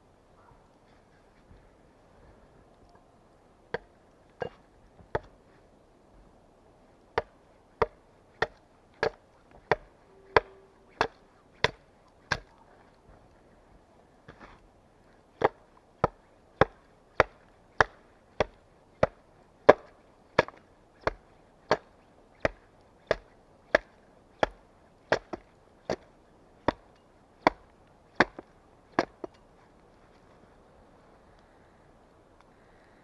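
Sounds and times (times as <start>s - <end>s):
axe chopping wood: 3.7s - 5.4s, 7.1s - 12.5s, 15.4s - 29.4s.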